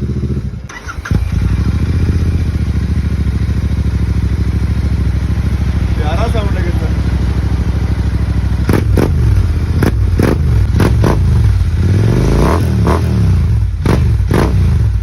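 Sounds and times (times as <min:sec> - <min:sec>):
motorcycle engine idling and revving: 0:00.0 - 0:15.0
exhaust cracks: 0:03.8 - 0:13.1.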